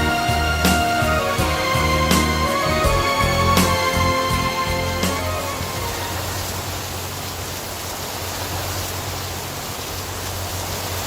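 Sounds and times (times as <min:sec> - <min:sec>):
synthesizer notes: 0:00.0 - 0:06.5
steady rain hiss: 0:00.0 - 0:11.0.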